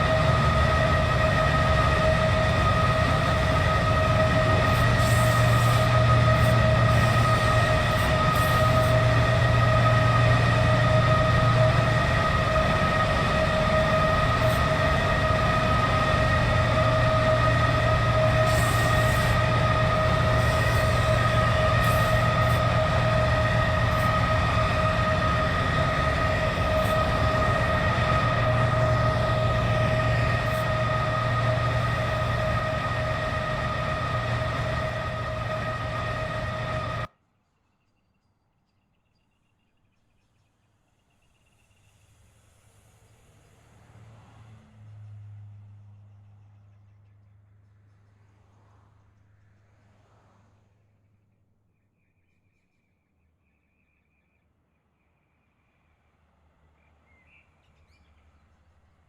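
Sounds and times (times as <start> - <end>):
ringing whine: 0.0 - 37.1
train rumbling past: 0.0 - 37.1, 40.6 - 51.2.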